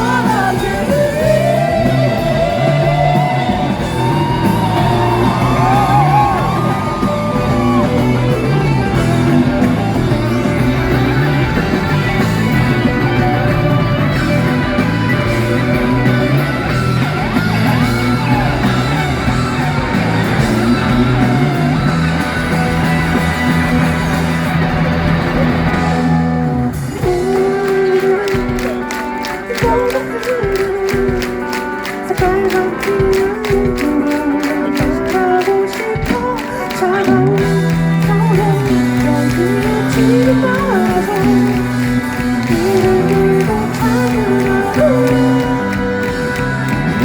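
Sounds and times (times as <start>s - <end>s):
live rock band playing: 0.0s - 47.0s
high melodic line: 0.8s - 30.6s
crowd shouting: 2.6s - 26.2s.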